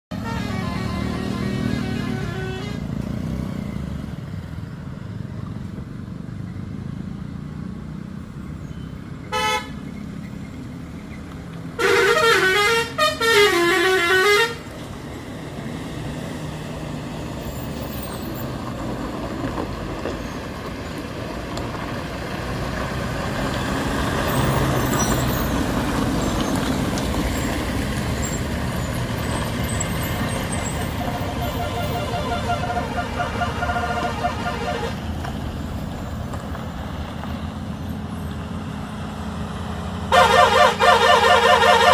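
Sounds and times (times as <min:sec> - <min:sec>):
engine and road rumble: 0:00.0 - 0:41.9
truck horn blasting: 0:00.1 - 0:02.9, 0:09.3 - 0:09.8, 0:11.8 - 0:14.7, 0:30.7 - 0:35.1, 0:40.1 - 0:41.9.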